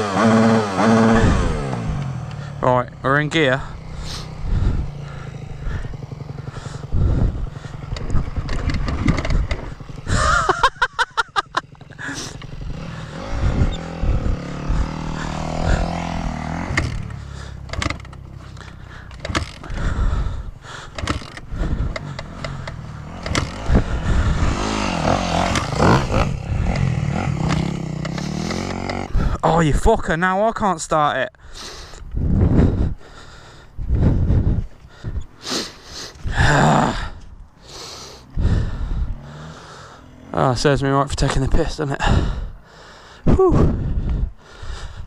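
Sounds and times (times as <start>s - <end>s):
dirt bike engine firing: 0.0s - 2.6s, 3.6s - 29.4s
bike clattering and scraping: 3.7s - 29.4s.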